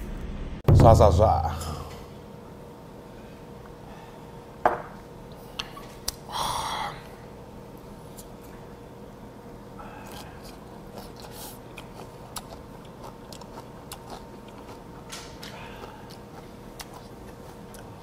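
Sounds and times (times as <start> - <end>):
faint steady hum: 0.0 - 18.0
person chewing food: 9.9 - 18.0.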